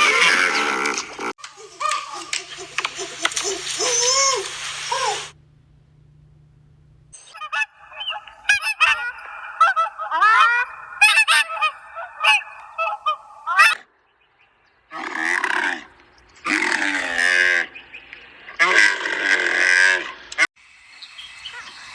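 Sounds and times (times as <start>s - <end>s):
animal call: 0.0s - 5.4s, 7.2s - 20.5s
birds honking: 0.0s - 5.4s, 6.5s - 20.5s.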